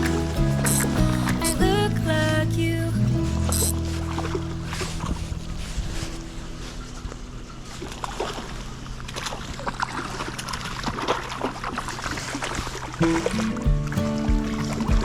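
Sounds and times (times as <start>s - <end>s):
music: 0.0s - 5.2s, 13.0s - 15.0s
water splashing and trickling: 0.0s - 15.0s.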